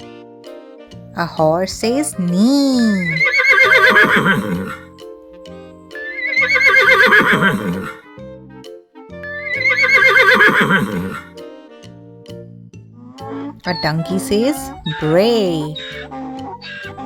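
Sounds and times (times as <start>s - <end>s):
background music: 0.0s - 17.0s
horse whinnying: 2.8s - 4.9s, 5.9s - 8.1s, 9.2s - 11.4s, 13.2s - 17.0s.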